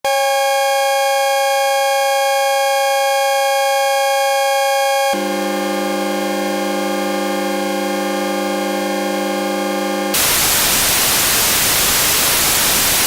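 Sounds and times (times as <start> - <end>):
buzzy square-wave synth chord: 5.0 - 13.0.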